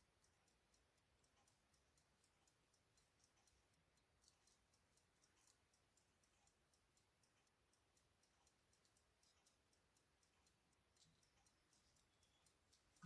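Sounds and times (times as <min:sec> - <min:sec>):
faint ticking: 0:00.0 - 0:13.0.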